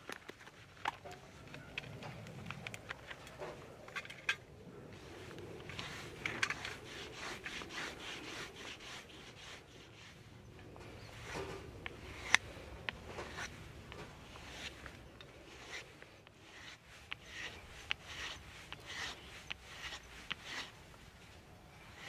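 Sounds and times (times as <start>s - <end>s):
knife scraping: 5.0s - 10.2s, 10.8s - 22.0s.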